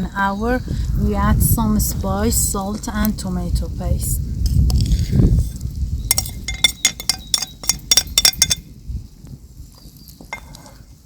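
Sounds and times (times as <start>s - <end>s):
utensil clinking against cookware: 6.1s - 8.6s.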